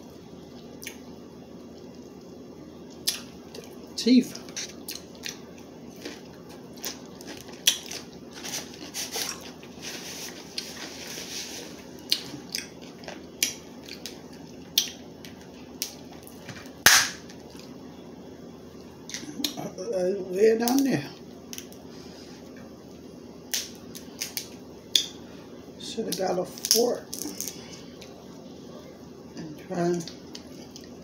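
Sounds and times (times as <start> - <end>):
crab shells cracking in teeth: 6.0 - 8.1.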